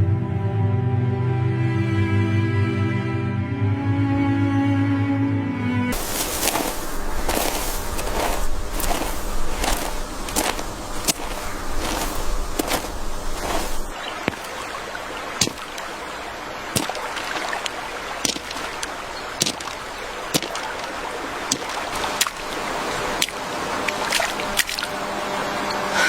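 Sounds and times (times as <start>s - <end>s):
rushing water: 5.9s - 25.6s.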